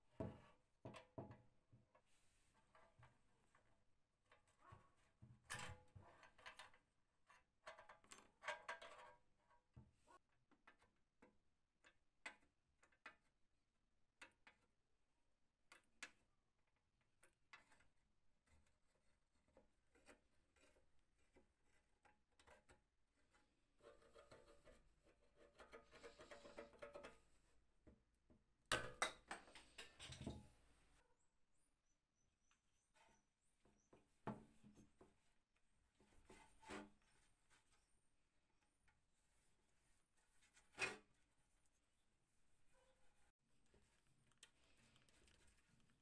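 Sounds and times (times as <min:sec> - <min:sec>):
faint clicks and knocks of handling: 0:15.6 - 0:31.0, 0:33.6 - 0:46.0.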